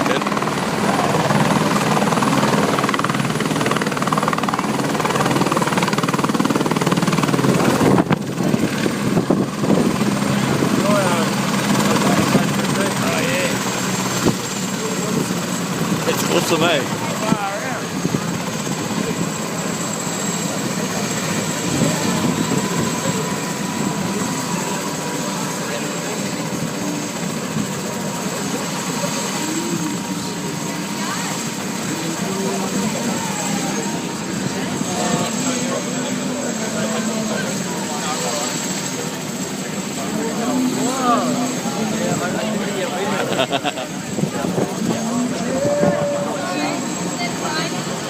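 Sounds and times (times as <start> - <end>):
helicopter rotor chop: 0.0 - 48.0.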